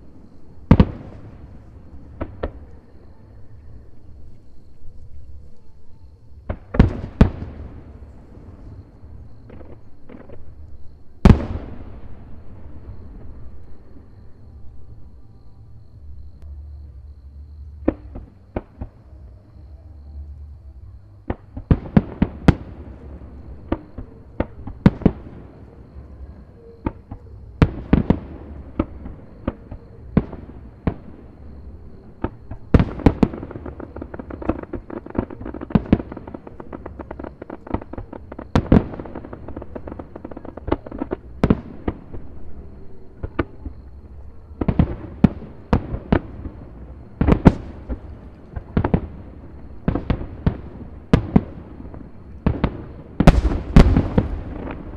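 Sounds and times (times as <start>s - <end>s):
fireworks bursting with sharp bangs: 0.0s - 3.9s, 6.3s - 14.3s, 17.7s - 19.4s, 21.2s - 54.9s.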